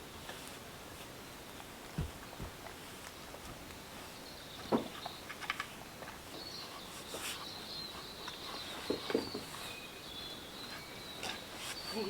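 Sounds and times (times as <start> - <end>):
knocks and scuffs: 1.9 - 2.8.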